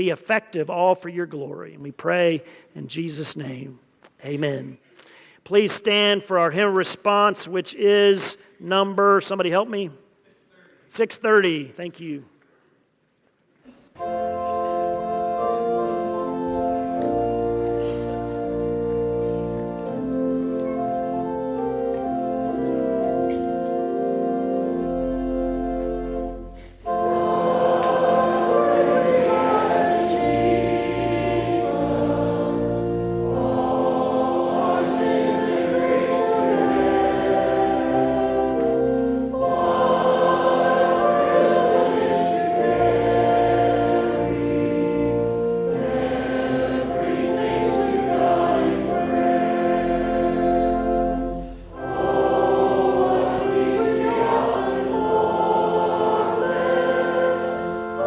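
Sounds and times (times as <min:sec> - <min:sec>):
congregation singing a hymn: 0:14.0 - 0:58.0
organ chords: 0:14.0 - 0:58.0.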